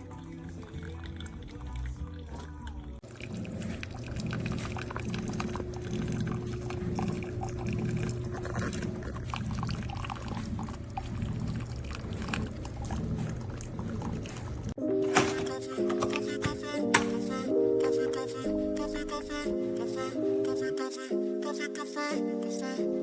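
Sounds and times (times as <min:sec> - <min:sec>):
liquid pouring into a cup: 0:00.0 - 0:17.4.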